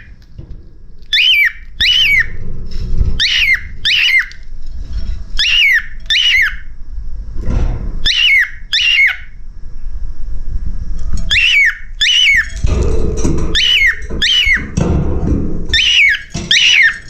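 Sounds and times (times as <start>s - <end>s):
cockatiel whistling: 1.1s - 2.4s, 3.2s - 4.4s, 5.4s - 6.7s, 8.0s - 9.4s, 11.3s - 12.5s, 13.6s - 14.8s, 15.7s - 17.0s.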